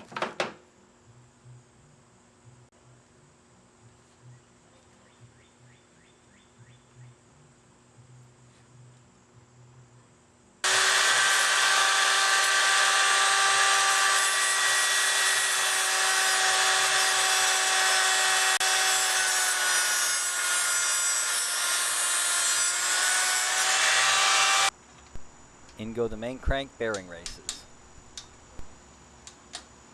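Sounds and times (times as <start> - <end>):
power tool scraping metal: 10.6 - 24.7.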